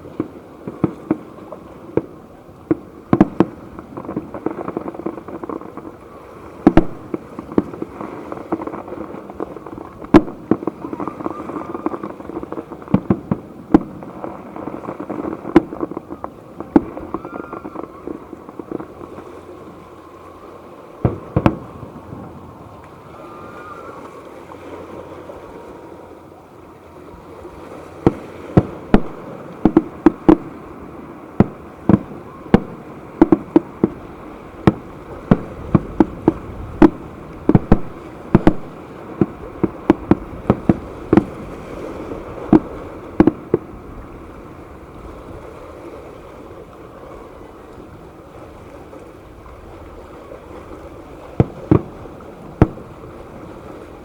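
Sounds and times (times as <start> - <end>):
steady background hiss: 0.0 - 54.0
firework shells bursting: 28.0 - 30.6, 31.4 - 41.5.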